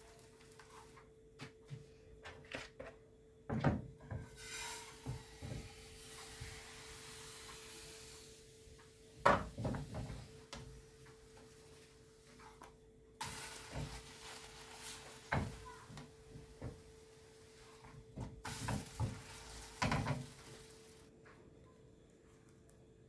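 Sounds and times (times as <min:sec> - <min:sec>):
soft hiss: 0:04.3 - 0:21.1
utensils and cookware clattering: 0:13.2 - 0:21.0.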